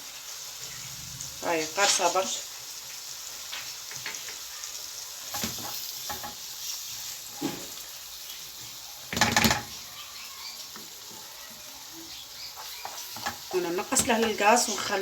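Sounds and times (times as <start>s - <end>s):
food sizzling in a frying pan: 0.0s - 15.0s
utensil clattering against pan: 5.3s - 6.4s, 9.1s - 9.8s, 12.8s - 14.7s.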